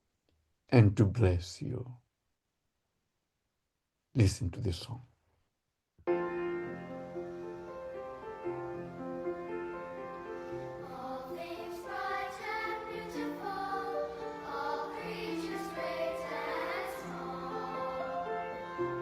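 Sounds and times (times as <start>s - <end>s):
keyboard chords: 6.1s - 19.0s
choir singing a gospel hymn: 7.3s - 19.0s.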